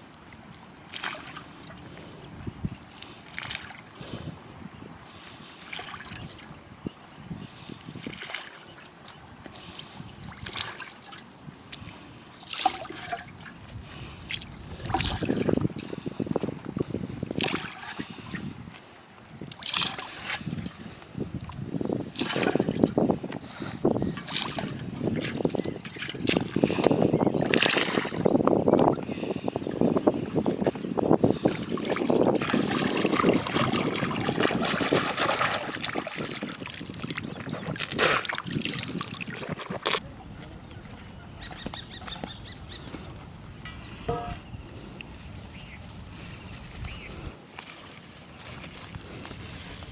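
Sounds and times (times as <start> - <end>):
water sloshing and splashing: 0.1 - 1.9, 2.8 - 4.0, 5.1 - 6.6, 7.5 - 40.0, 47.5 - 49.9.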